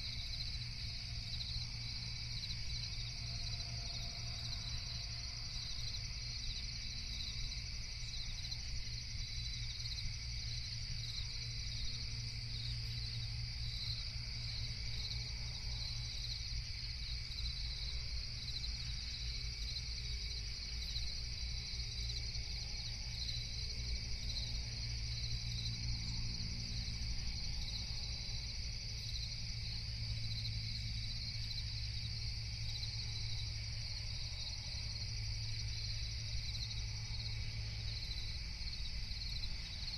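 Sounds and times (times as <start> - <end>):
crickets chirping: 0.0 - 39.9
steady low hum: 0.0 - 39.9.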